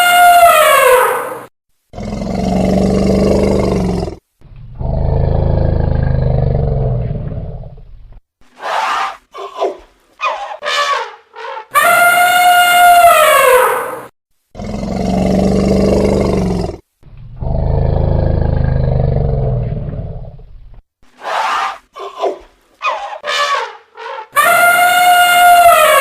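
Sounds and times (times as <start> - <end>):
elephant trumpeting: 0.0 - 1.4, 8.6 - 14.1, 21.2 - 26.0
elephant low roars: 2.0 - 7.9, 14.6 - 20.5
short high elephant calls: 8.6 - 14.0, 22.8 - 26.0.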